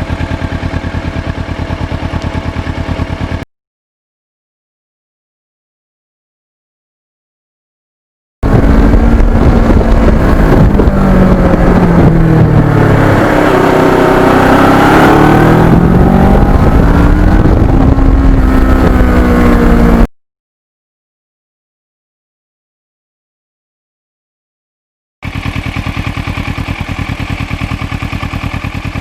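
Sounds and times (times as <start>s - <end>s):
motorcycle engine revving: 0.0s - 3.4s, 8.4s - 20.1s, 25.2s - 29.0s
wind noise: 8.4s - 20.1s.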